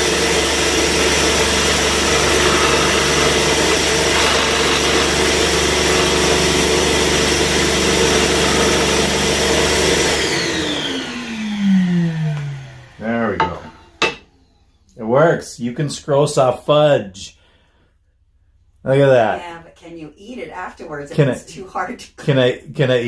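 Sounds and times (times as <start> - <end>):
scroll saw cutting: 0.0 - 14.2.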